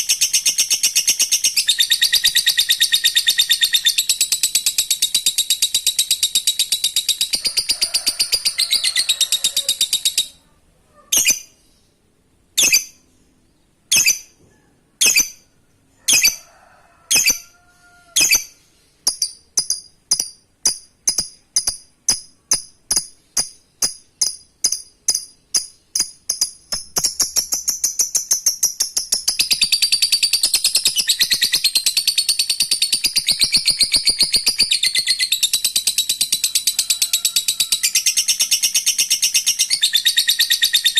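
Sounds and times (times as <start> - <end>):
sharp bird chirps: 0.0 - 10.5, 11.1 - 12.0, 12.6 - 13.2, 13.9 - 14.4, 18.2 - 36.7.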